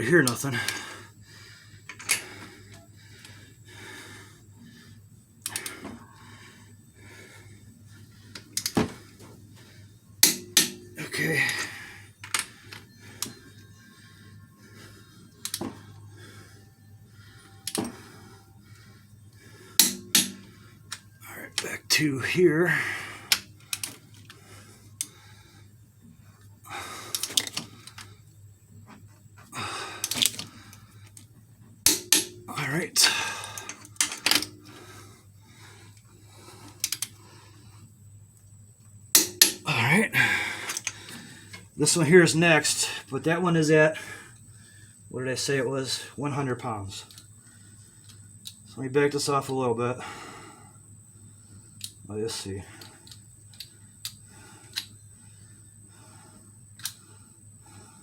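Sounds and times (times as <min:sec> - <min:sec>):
heavy breaths of effort: 0:00.0 - 0:31.8, 0:32.4 - 0:38.6, 0:39.5 - 0:41.8, 0:43.9 - 0:45.2, 0:47.0 - 0:48.7, 0:49.9 - 0:58.0
torque wrench clicks: 0:05.4 - 0:05.8, 0:08.3 - 0:08.8, 0:15.4 - 0:15.7, 0:17.6 - 0:17.9, 0:23.3 - 0:24.0, 0:27.1 - 0:28.1, 0:30.0 - 0:30.5, 0:36.8 - 0:37.2, 0:56.8 - 0:57.0.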